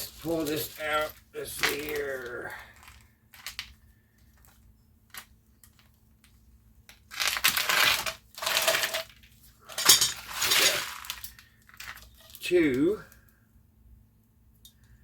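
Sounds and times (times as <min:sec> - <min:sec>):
metal parts rattling and crunching: 0:07.1 - 0:12.4.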